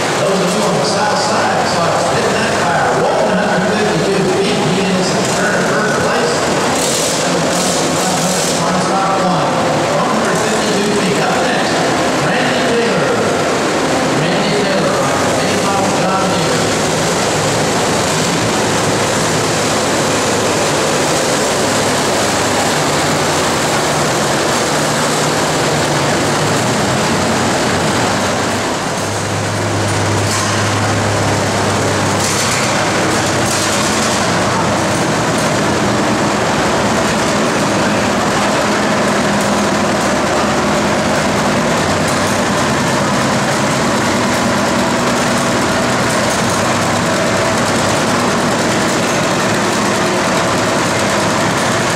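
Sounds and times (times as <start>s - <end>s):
tractor engine running under load: 0.0s - 51.9s.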